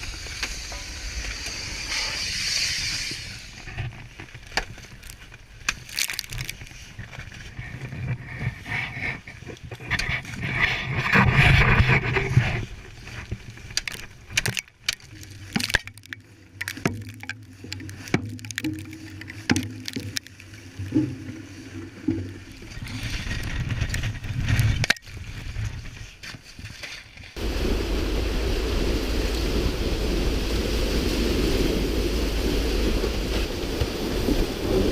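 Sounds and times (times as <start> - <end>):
sea noise: 0.0 - 4.3, 27.4 - 34.9
wind: 0.0 - 34.9
sharp knocks and cracks: 4.5 - 6.7, 13.6 - 21.3
low engine hum: 27.4 - 34.9.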